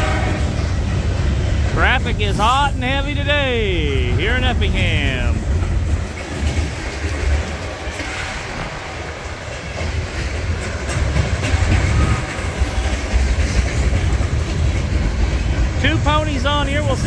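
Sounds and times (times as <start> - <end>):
freight train rumbling past: 0.0 - 17.0
wheels clacking over rail joints: 5.4 - 15.8.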